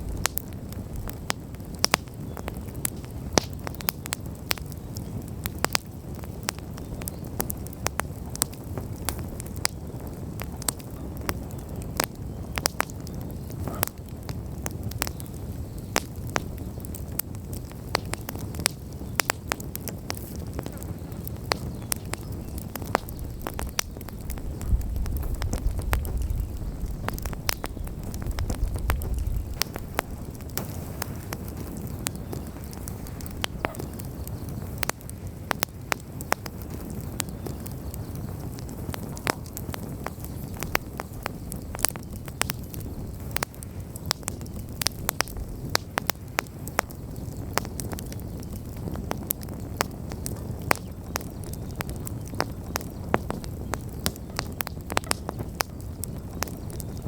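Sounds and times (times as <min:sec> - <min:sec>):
bonfire crackling: 0:00.0 - 0:57.0
low rumble: 0:23.2 - 0:31.1.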